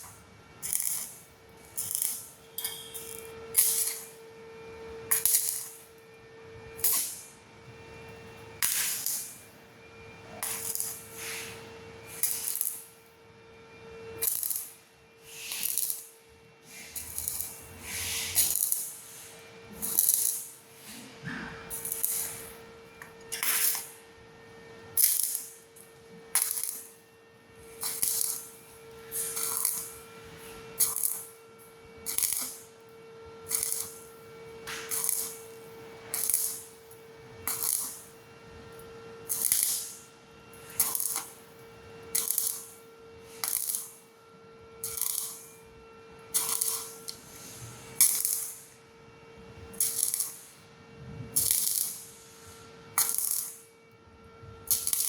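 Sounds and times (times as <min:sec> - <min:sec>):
welding arc crackling: 0:00.0 - 0:04.2, 0:05.1 - 0:06.0, 0:06.8 - 0:07.3, 0:08.6 - 0:09.5, 0:10.3 - 0:13.0, 0:14.2 - 0:16.2, 0:16.8 - 0:20.6, 0:21.7 - 0:24.0, 0:24.9 - 0:27.0, 0:27.6 - 0:44.1, 0:44.8 - 0:48.8, 0:49.6 - 0:50.6, 0:51.4 - 0:52.2, 0:53.0 - 0:53.7, 0:54.7 - 0:55.0.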